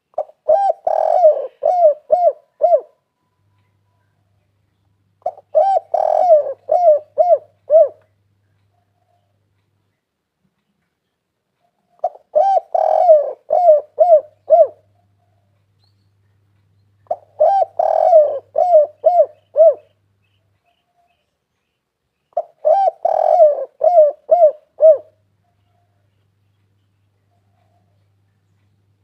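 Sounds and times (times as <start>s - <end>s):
dove cooing: 0.0s - 3.1s, 5.2s - 8.1s, 11.6s - 15.6s, 17.0s - 20.0s, 22.3s - 26.1s.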